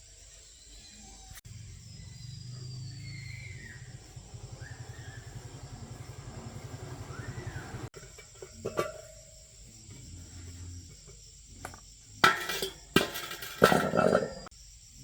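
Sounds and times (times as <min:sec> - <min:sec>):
motorbike engine idling: 0:01.5 - 0:09.6.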